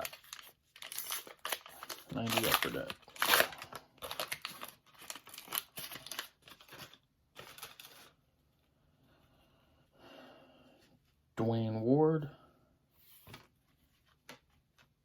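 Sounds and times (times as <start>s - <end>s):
wrapper tearing and crinkling: 0.0s - 8.1s.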